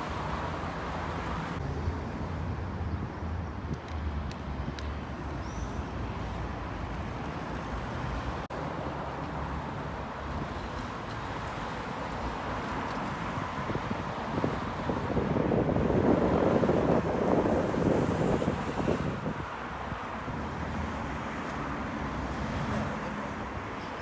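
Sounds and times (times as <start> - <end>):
traffic going by: 0.0 - 24.0
wind on the microphone: 12.7 - 21.0.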